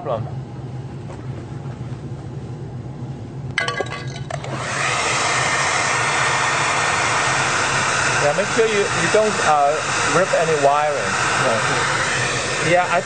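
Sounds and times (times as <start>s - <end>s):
low steady hum: 0.0s - 13.0s
hair dryer blowing: 4.4s - 13.0s.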